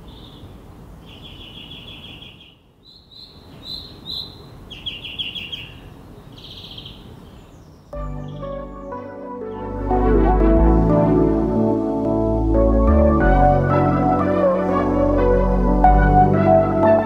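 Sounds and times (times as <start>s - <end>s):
songbird trilling: 0.1s - 8.9s.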